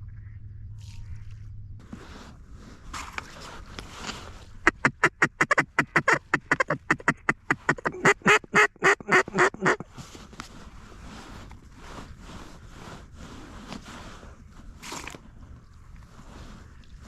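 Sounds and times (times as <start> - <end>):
duck call quacks: 4.6 - 9.9.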